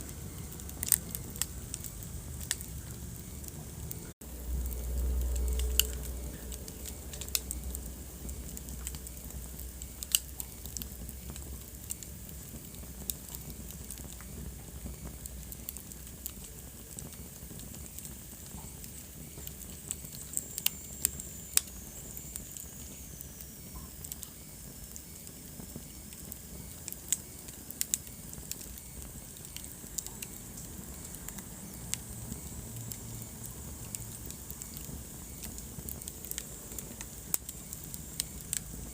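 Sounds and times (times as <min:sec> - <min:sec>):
wood fire crackling: 0:00.0 - 0:38.9
faint high whistle: 0:18.6 - 0:33.4.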